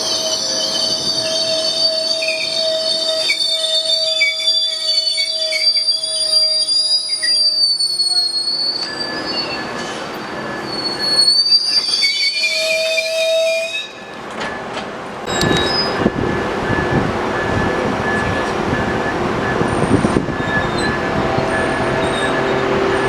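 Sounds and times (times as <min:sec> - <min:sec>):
train wheels squealing on rails: 0:00.0 - 0:23.0
train rumble with clicks: 0:13.9 - 0:23.0.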